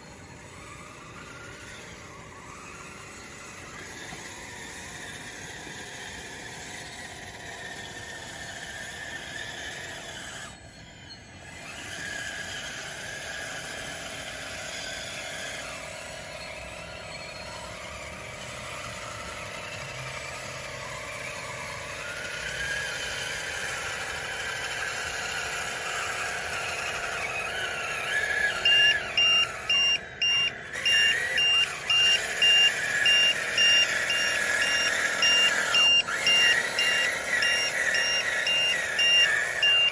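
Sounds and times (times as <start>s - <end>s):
electric motors whining: 0.0s - 39.9s
reversing beep: 9.2s - 12.4s, 15.1s - 39.9s.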